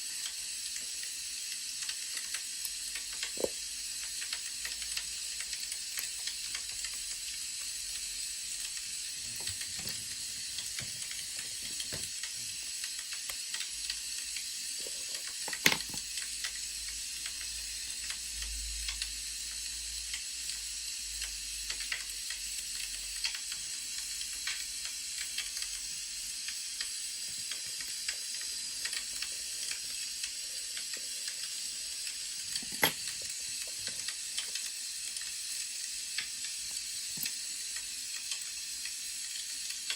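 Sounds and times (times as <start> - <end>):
wood fire crackling: 8.1 - 16.2.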